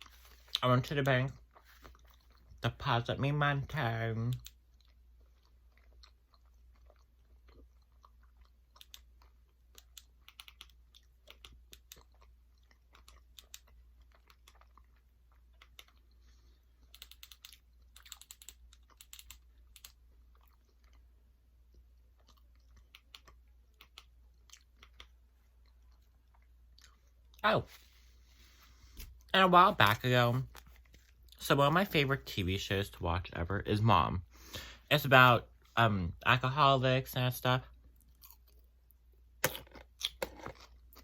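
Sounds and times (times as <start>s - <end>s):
person chewing food: 0.0s - 0.6s, 1.2s - 2.6s, 4.4s - 29.3s, 37.7s - 41.0s.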